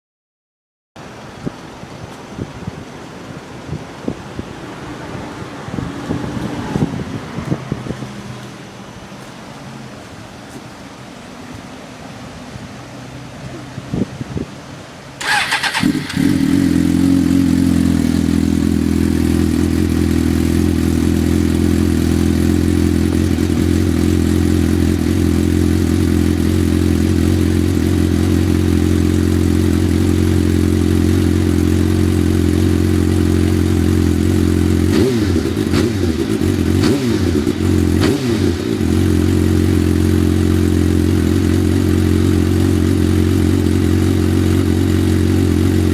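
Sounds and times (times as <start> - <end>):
motorcycle engine idling and blipping: 15.2 - 45.9.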